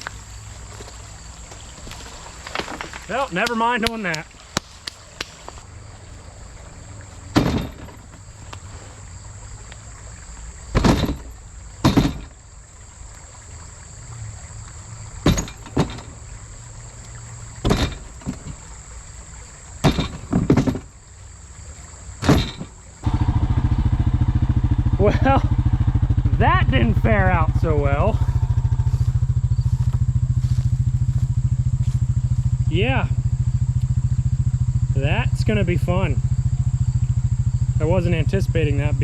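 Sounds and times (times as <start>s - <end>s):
low engine hum: 4.3s - 19.7s, 22.9s - 39.0s
heavy thuds: 7.3s - 8.3s, 10.8s - 12.4s, 15.2s - 16.2s, 17.6s - 18.6s, 22.2s - 33.3s.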